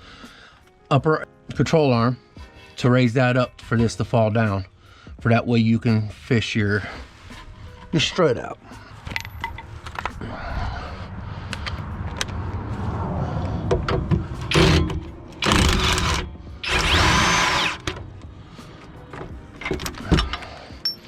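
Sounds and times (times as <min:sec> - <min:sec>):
power impact wrench bursts: 0:14.5 - 0:18.0.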